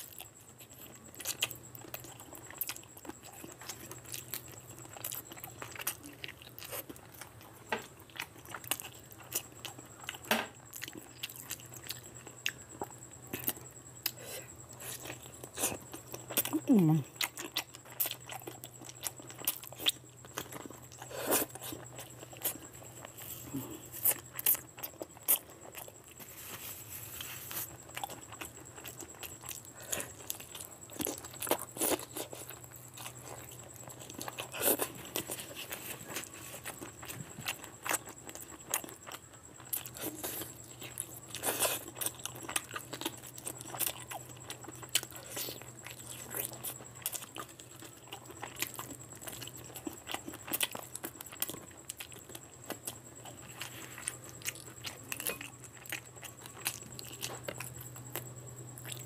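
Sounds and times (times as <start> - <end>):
open-mouth chewing with wet smacks: 27.9 - 59.0.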